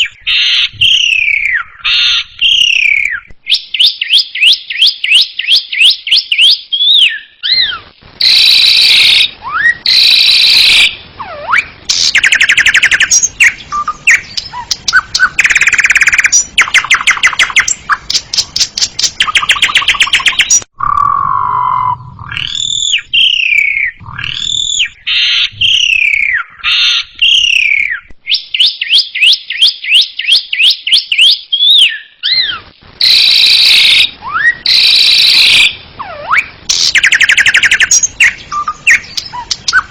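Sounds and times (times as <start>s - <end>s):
starling singing varied song: 33.0s - 39.9s.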